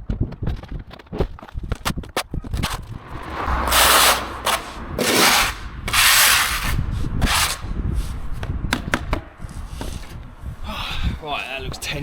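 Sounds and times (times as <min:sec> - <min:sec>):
rough brushing on hard surface: 0:03.2 - 0:08.2.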